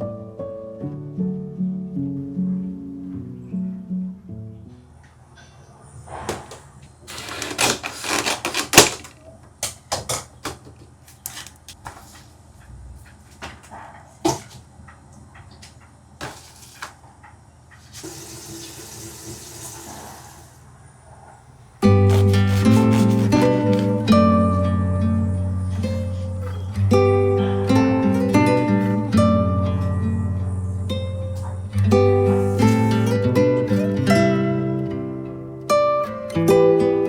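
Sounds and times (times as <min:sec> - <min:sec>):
kitchen clicks and knocks: 0:08.4 - 0:11.7.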